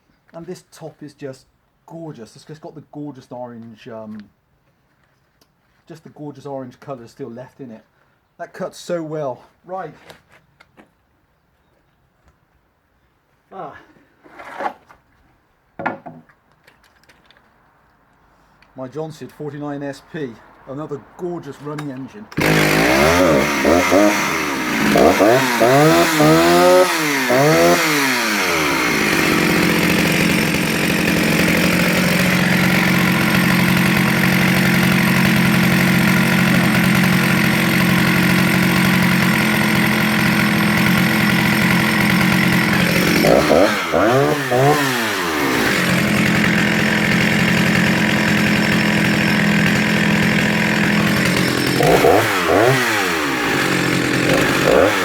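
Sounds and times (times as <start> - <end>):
chainsaw cutting through log: 21.8 - 55.0.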